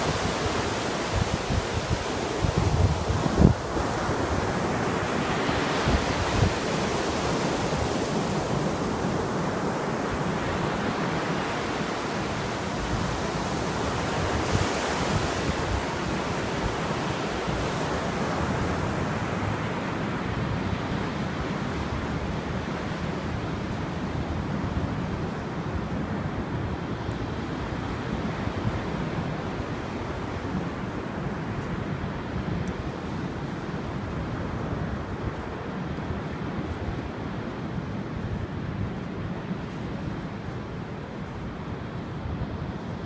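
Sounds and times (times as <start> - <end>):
waves washing in: 0.0 - 43.0
wind buffeting microphone: 0.0 - 43.0.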